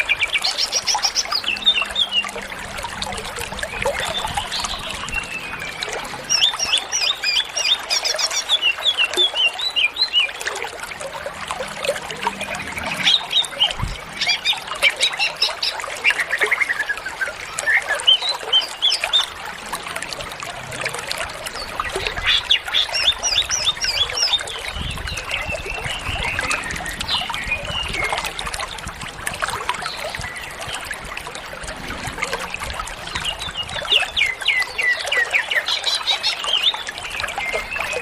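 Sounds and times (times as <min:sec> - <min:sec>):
bird singing chirpy song: 0:00.0 - 0:10.6, 0:21.5 - 0:28.9.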